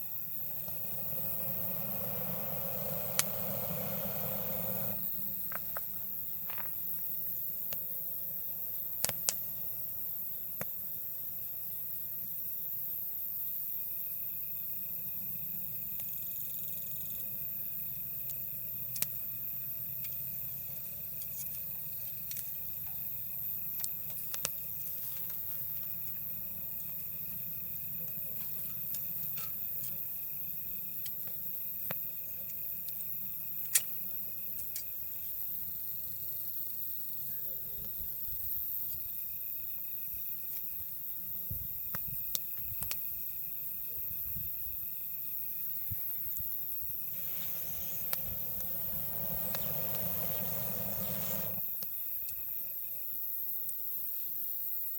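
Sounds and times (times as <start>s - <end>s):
night insects chirping: 0.0s - 54.9s
campfire crackling and popping: 0.2s - 8.0s, 8.6s - 9.9s, 18.2s - 19.2s, 23.6s - 27.5s, 41.8s - 43.2s, 46.9s - 52.0s
soft rushing noise: 0.6s - 5.1s, 47.1s - 51.6s.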